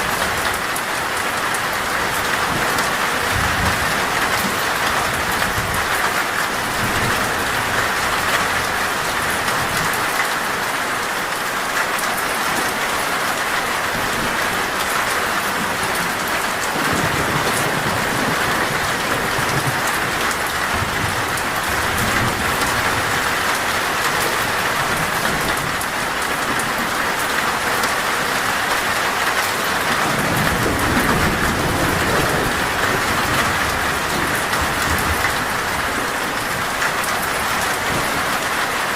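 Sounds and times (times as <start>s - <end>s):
heavy rain on a metal roof: 0.0s - 38.9s
thunder rumbling: 15.6s - 27.0s, 29.8s - 37.0s.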